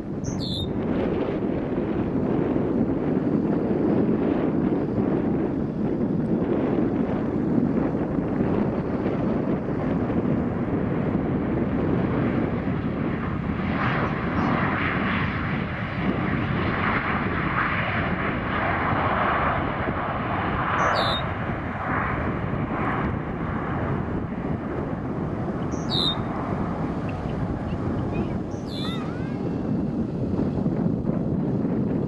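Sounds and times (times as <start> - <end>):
jet engines rumbling: 0.0 - 32.0
wind buffeting microphone: 0.0 - 32.0
short high chirp: 25.8 - 26.2.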